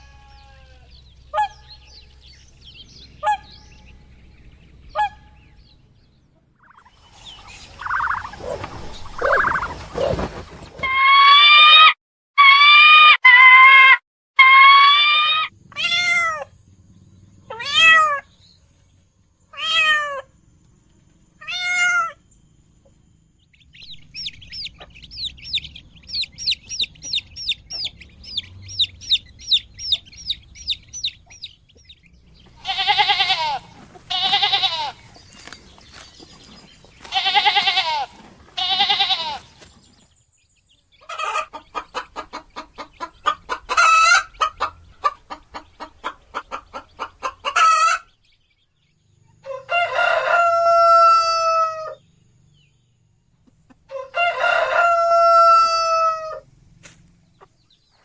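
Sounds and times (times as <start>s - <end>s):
hen clucks: 0.0s - 5.6s, 6.6s - 10.9s, 24.0s - 39.7s, 40.9s - 48.2s
loud drawn-out animal calls: 6.8s - 18.4s, 19.5s - 20.3s, 32.5s - 35.2s, 37.0s - 39.5s
kitten meows: 15.2s - 16.5s, 17.5s - 18.2s, 19.6s - 20.3s, 21.4s - 22.2s.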